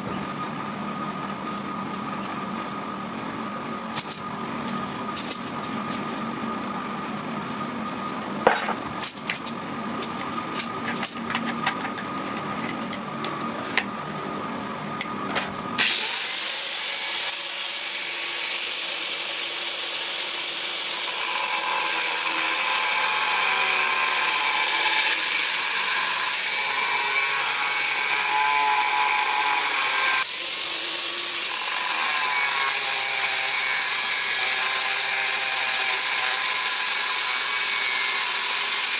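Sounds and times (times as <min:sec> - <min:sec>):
low mechanical hum: 0:00.0 - 0:38.9
sharp clicks and knocks: 0:08.5 - 0:13.9
power grinder grinding steel: 0:15.8 - 0:38.9.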